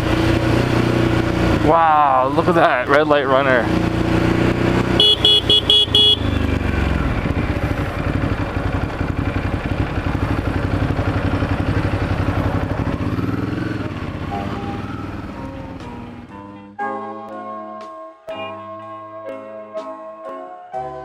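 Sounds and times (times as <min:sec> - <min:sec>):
motorcycle engine running: 0:00.0 - 0:16.3.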